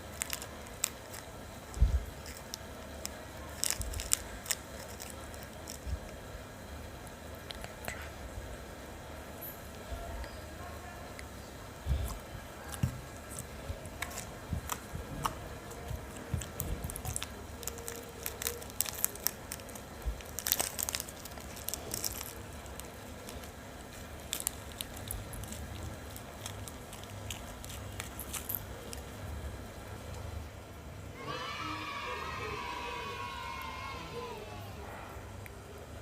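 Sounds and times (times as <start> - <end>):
slime squished by hand: 0.0 - 6.2, 11.8 - 29.1.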